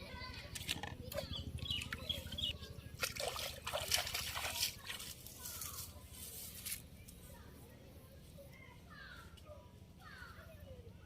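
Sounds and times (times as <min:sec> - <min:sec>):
water splashing and trickling: 0:01.1 - 0:06.0.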